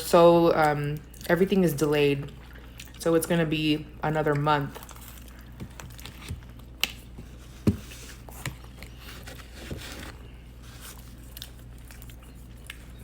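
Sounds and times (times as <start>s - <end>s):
person eating: 4.3s - 13.0s.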